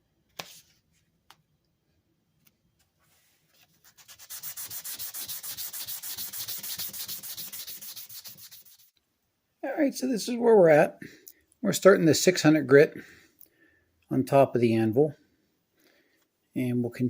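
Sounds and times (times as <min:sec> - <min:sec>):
sandpaper scratching metal: 0:03.8 - 0:08.9.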